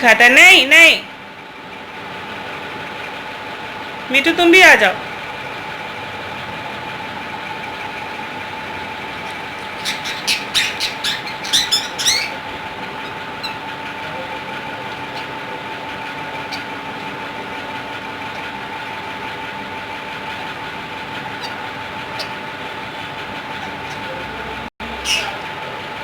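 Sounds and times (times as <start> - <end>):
steady mechanical hum: 0.0 - 26.0
parakeets squawking: 7.6 - 25.8.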